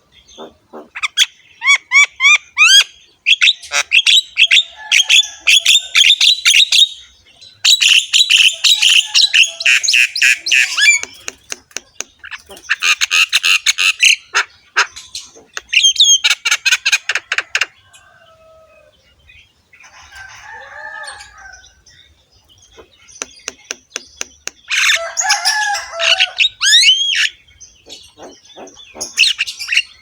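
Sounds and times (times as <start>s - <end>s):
myna bird chattering: 0.0s - 18.1s, 19.3s - 30.0s
soft low bird calls: 7.6s - 30.0s.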